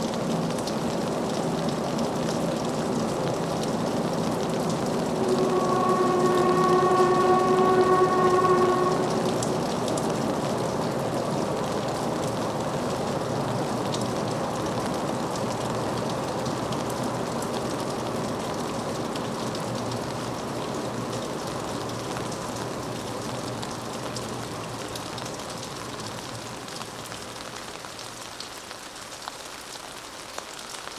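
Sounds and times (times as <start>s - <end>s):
train wheels rumbling on rails: 1.4s - 14.8s.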